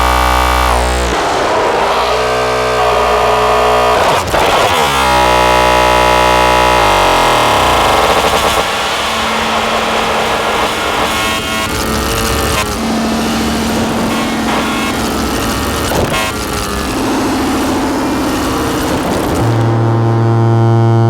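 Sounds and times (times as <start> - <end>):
harsh distorted synthesizer drone: 0.0 - 21.0.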